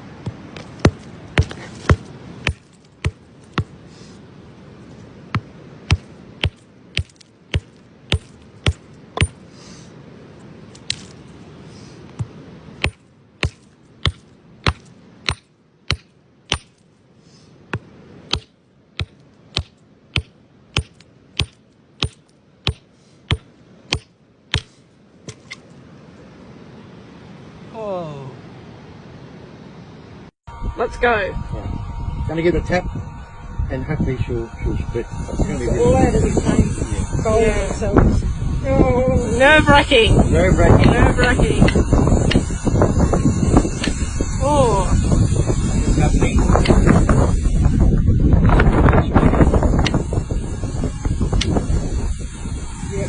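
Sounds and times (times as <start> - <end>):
hammer tapping on rock: 0.2 - 3.8, 5.3 - 9.4, 12.2 - 16.7, 17.7 - 24.7.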